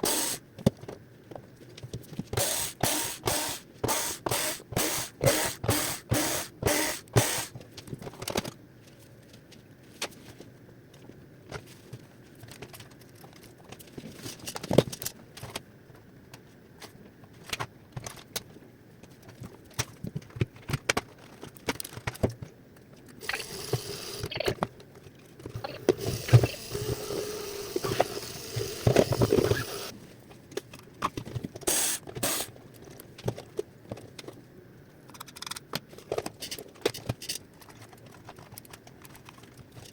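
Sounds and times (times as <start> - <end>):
plastic parts clicking: 19.2 - 29.9, 35.0 - 39.9
scraping and rattling of parts: 35.1 - 39.9.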